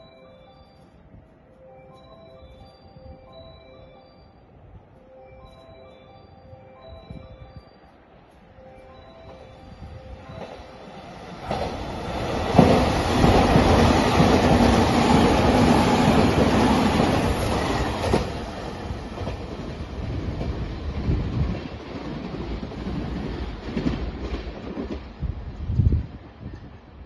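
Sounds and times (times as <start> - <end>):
electric train passing at speed: 0.0 - 27.0.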